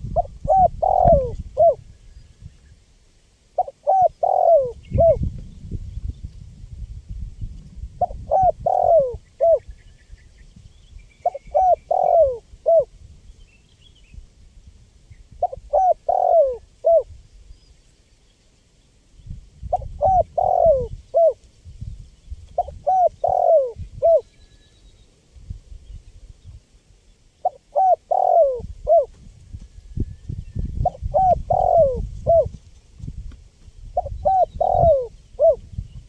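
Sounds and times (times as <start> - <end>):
dove cooing: 0.0 - 1.8, 3.6 - 5.3, 8.0 - 9.7, 11.2 - 12.9, 15.4 - 17.1, 19.7 - 21.4, 22.6 - 24.3, 27.4 - 29.2, 30.8 - 32.6, 34.0 - 35.7.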